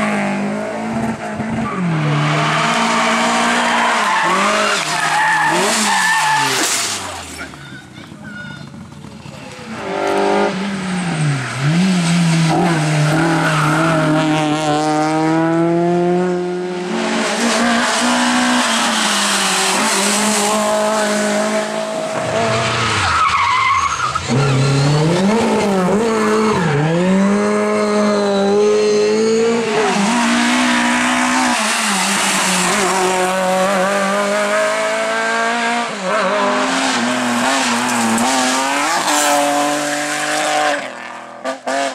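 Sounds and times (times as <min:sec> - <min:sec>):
rally car engines revving: 0:00.0 - 0:41.9
tyres squealing and skidding: 0:01.5 - 0:09.8, 0:10.8 - 0:14.4, 0:22.2 - 0:34.2, 0:36.1 - 0:40.8.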